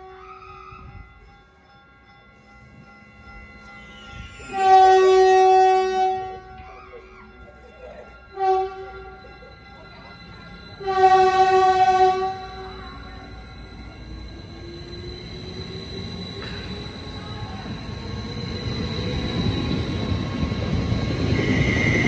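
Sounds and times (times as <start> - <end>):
train rumbling: 0.0 - 22.0
train horn blasts: 4.5 - 6.6, 8.4 - 9.0, 10.8 - 12.8.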